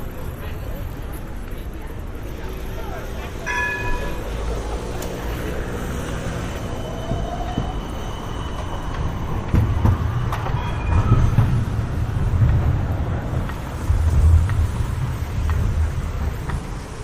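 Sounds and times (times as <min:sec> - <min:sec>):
tram running on rails: 0:00.0 - 0:17.0
thin wheel squeal: 0:06.4 - 0:09.4.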